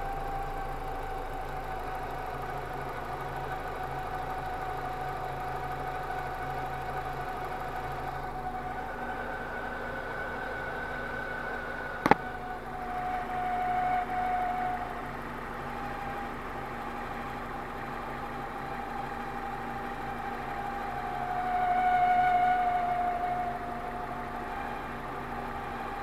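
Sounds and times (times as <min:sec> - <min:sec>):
car engine running: 0:00.0 - 0:26.0
steady whining tone: 0:00.0 - 0:26.0
sharp click: 0:12.0 - 0:12.3.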